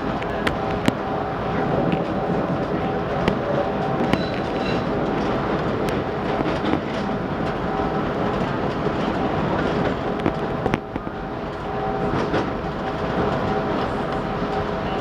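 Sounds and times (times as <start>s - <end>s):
train rumbling on track: 0.0s - 15.0s
wheels clicking over rail joints: 1.6s - 11.0s.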